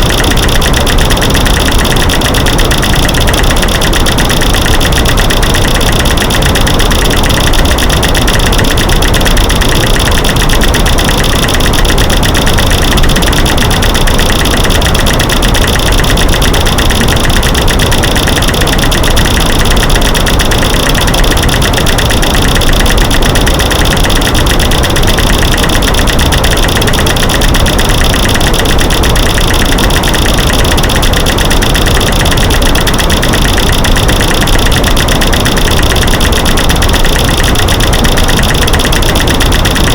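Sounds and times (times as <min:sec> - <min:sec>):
rapid clicks and knocks: 0:00.0 - 0:39.9.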